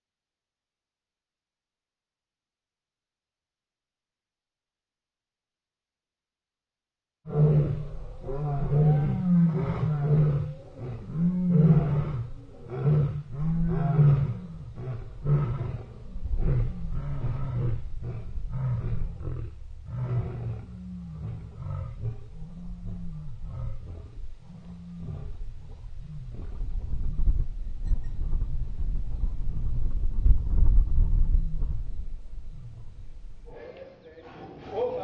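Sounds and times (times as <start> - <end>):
lion roaring: 7.3 - 27.1.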